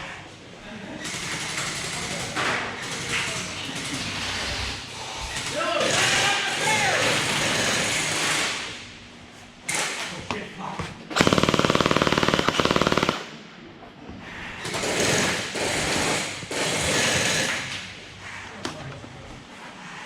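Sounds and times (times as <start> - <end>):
gel blaster full-auto burst: 11.2 - 13.4.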